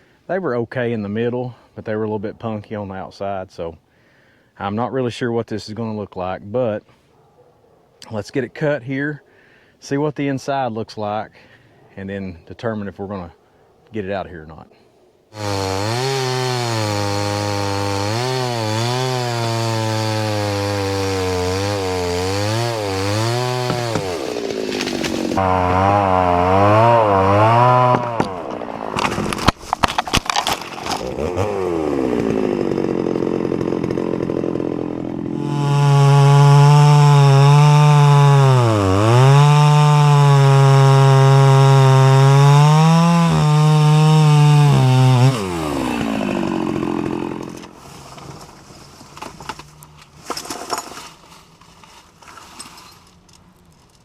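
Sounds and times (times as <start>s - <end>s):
chainsaw cutting log: 15.3s - 52.8s.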